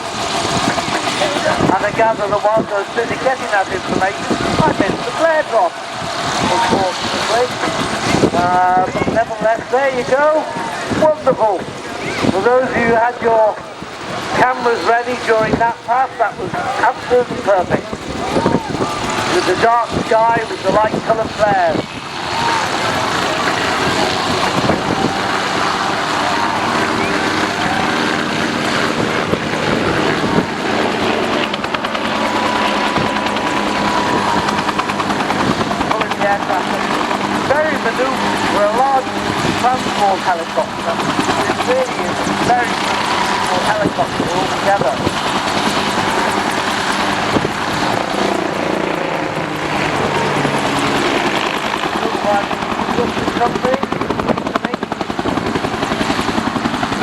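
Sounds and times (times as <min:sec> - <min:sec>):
helicopter turbine and rotor noise: 0:00.0 - 0:57.0
rapid rotor chop: 0:21.9 - 0:57.0.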